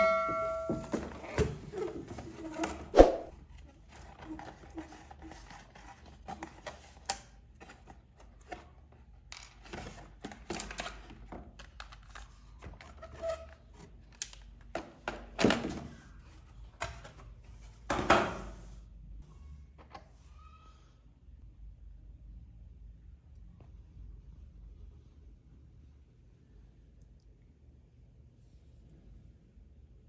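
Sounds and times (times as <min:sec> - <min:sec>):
toys and packaging handled: 0:00.9 - 0:17.8.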